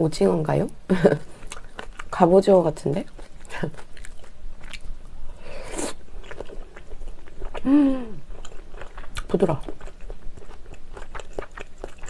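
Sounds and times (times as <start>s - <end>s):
close chewing of noodles: 1.0s - 12.0s
person humming: 7.6s - 8.2s.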